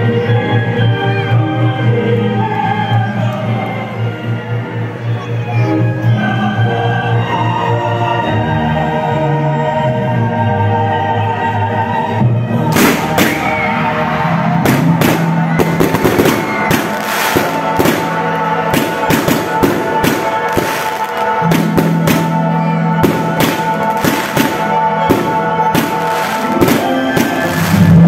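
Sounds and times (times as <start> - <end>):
music with sustained notes: 0.0 - 28.0
fireworks bangs and crackles: 12.7 - 28.0.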